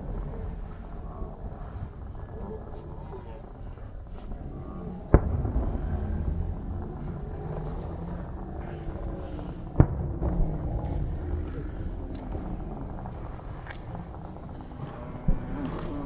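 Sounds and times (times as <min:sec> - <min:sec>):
low rumble of fireworks: 0:00.0 - 0:16.0
firework bang: 0:05.1 - 0:08.2, 0:09.7 - 0:10.8.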